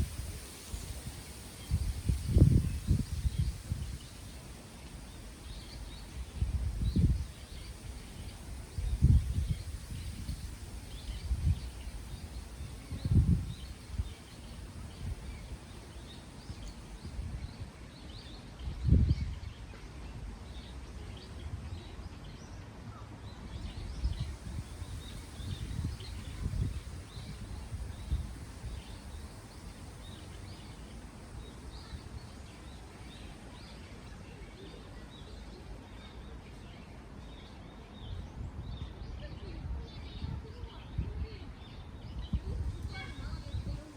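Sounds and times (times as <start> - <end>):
wind gusts buffeting microphone: 0.0 - 17.8, 18.6 - 19.6, 23.5 - 32.8, 38.4 - 43.9
wind in trees: 0.0 - 43.9.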